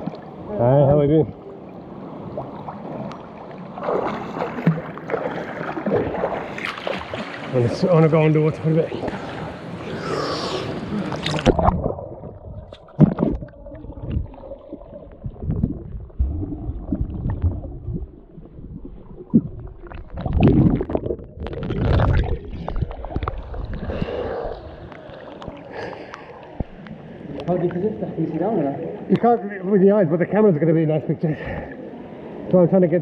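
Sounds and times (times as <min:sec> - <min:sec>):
underwater gurgling and sloshing: 0:00.0 - 0:32.6
bubbling: 0:09.8 - 0:26.8
low underwater thumps: 0:11.4 - 0:24.0.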